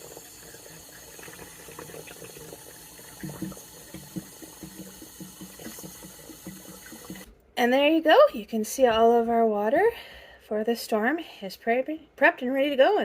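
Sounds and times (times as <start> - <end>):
water running from tap: 0.0 - 7.3
containers knocking: 3.2 - 7.3.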